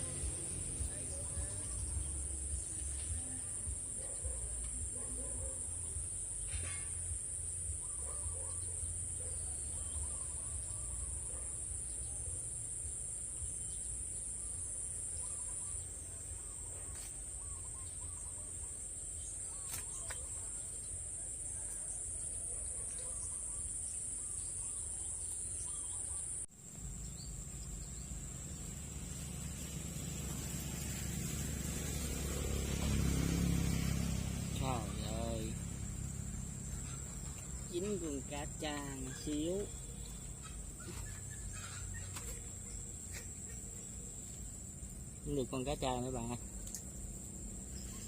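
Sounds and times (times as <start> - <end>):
insects droning: 0.0 - 48.0
faint bird chirps: 13.4 - 28.7, 36.6 - 44.4.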